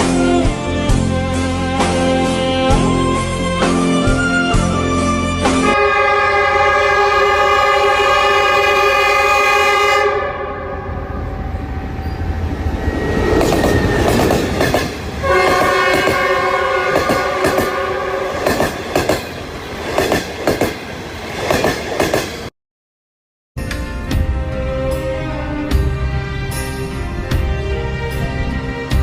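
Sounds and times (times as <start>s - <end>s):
train horn: 0.0s - 12.2s, 15.2s - 18.6s.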